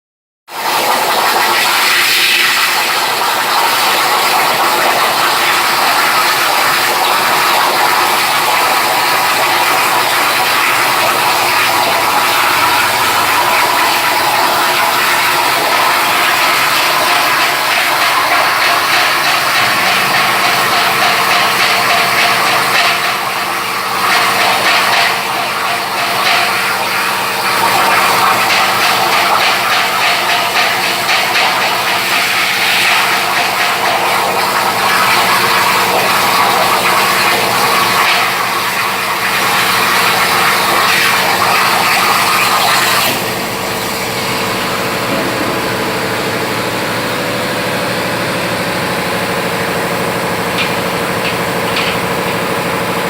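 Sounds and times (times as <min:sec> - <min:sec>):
plasma cutter arc hissing: 0:00.6 - 0:38.1, 0:39.7 - 0:45.9.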